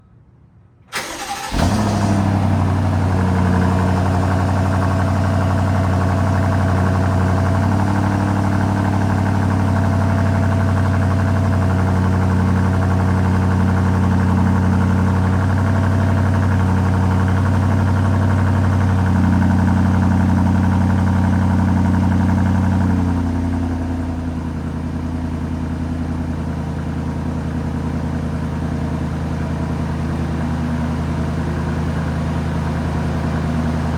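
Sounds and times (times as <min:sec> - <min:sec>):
engine cranking: 0:00.9 - 0:02.5
car engine idling: 0:01.0 - 0:33.9.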